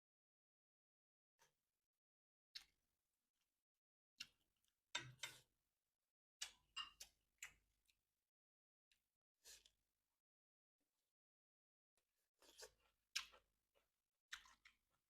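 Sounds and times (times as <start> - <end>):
eating clicks and smacks: 13.2 - 13.5.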